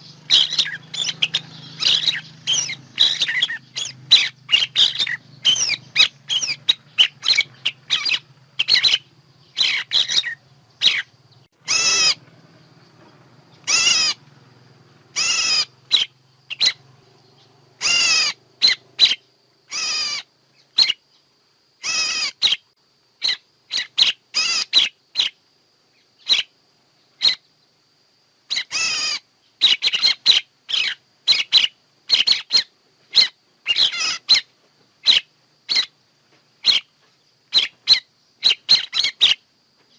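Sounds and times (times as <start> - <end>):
bird chirps and calls: 0.0 - 14.3, 15.1 - 25.4, 26.0 - 27.6, 28.5 - 36.0, 36.6 - 39.9.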